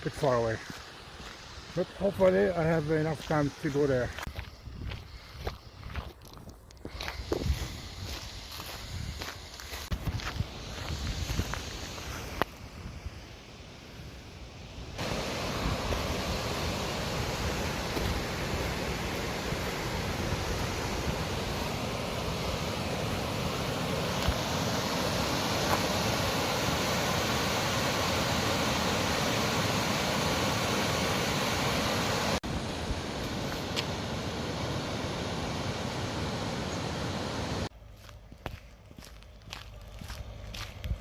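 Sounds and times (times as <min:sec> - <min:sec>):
footsteps: 0:03.1 - 0:12.5, 0:17.9 - 0:18.3, 0:37.9 - 0:41.0.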